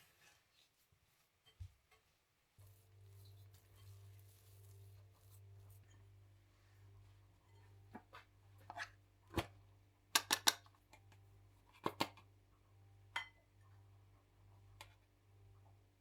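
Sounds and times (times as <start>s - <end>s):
low steady hum: 2.4s - 16.0s.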